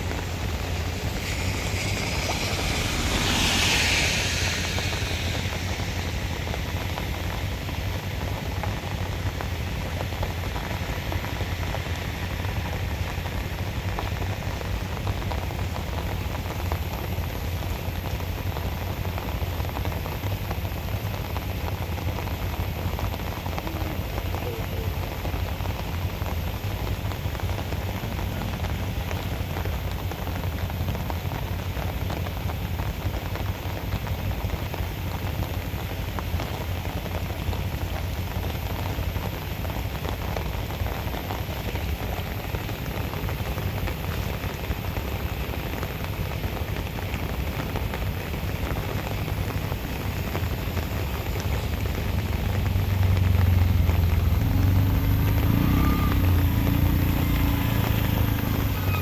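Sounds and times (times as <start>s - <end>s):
rain falling on a flooded street: 0.0s - 59.0s
vehicle engine rumble: 0.0s - 59.0s.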